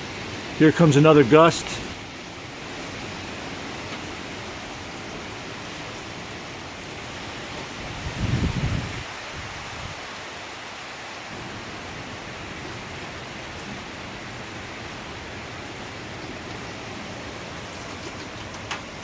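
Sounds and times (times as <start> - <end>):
hurricane wind: 0.0 - 19.0
wind-blown rain: 0.0 - 19.0
wind gust hitting microphone: 7.8 - 10.1.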